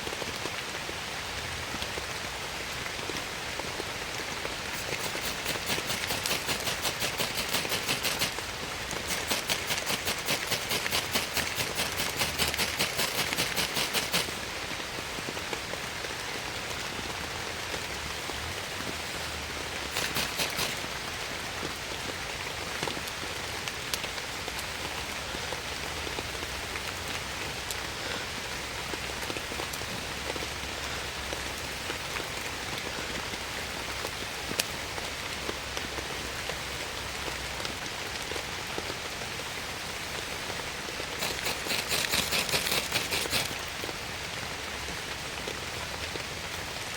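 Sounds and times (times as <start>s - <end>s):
steady rain falling: 0.0s - 46.9s
rapid ticking: 4.7s - 14.5s, 19.9s - 20.9s, 41.2s - 43.7s.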